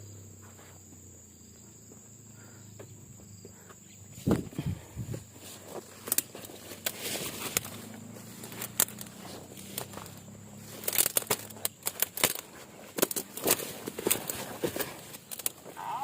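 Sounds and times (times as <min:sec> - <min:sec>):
high insect whine: 0:00.0 - 0:16.0
footsteps in dry vegetation: 0:04.0 - 0:16.0.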